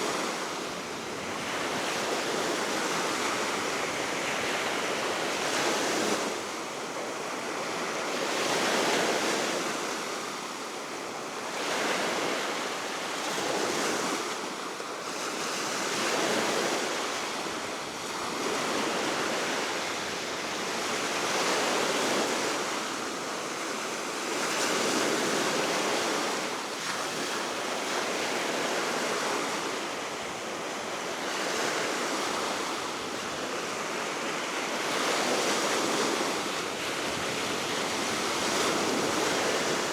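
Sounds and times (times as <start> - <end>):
waves breaking on shore: 11.5 - 39.9.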